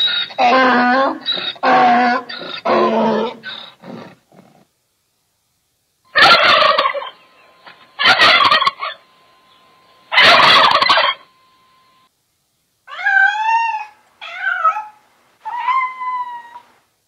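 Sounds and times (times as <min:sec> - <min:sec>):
donkey braying: 0:00.0 - 0:04.3, 0:06.2 - 0:09.0, 0:10.1 - 0:11.2
turkey gobbling: 0:06.2 - 0:09.0, 0:10.1 - 0:11.3.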